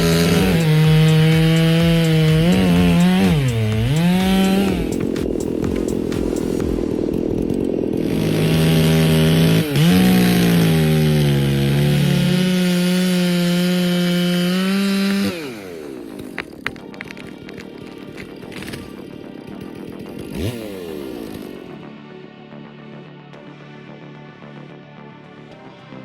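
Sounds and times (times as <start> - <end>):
chainsaw cutting: 0.0 - 21.9.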